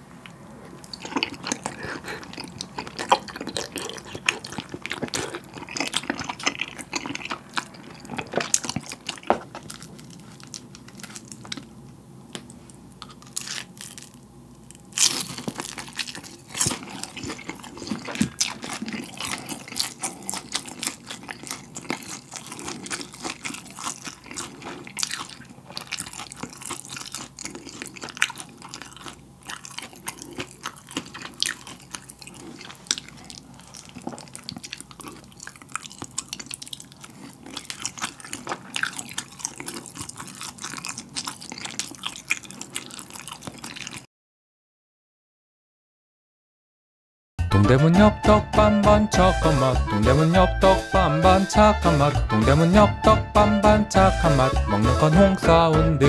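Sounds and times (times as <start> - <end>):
wet chewing with mouth smacks: 0.2 - 11.7, 15.0 - 44.1
crunchy chewing: 0.2 - 44.1
sharp bite into crispy food: 14.9 - 29.0.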